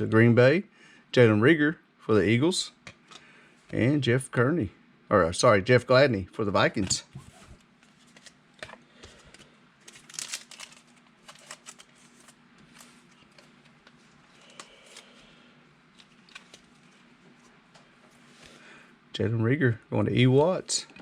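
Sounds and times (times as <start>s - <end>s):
faint low hum: 0.0s - 21.0s
cards rustling and clicking: 6.8s - 15.3s, 15.9s - 17.6s.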